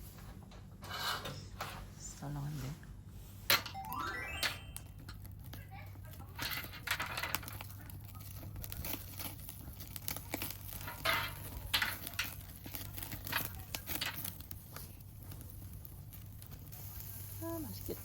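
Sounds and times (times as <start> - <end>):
wrapping crinkling and tearing: 5.2 - 16.7.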